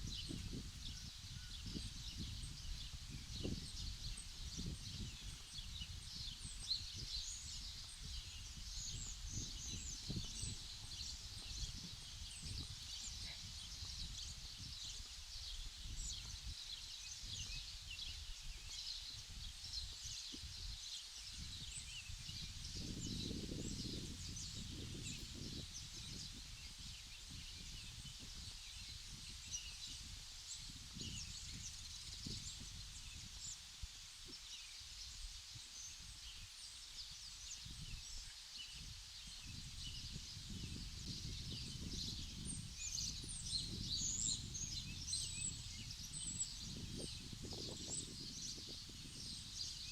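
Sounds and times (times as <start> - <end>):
small birds chirping: 0.0 - 49.9
wind rumble on microphone: 0.0 - 49.9.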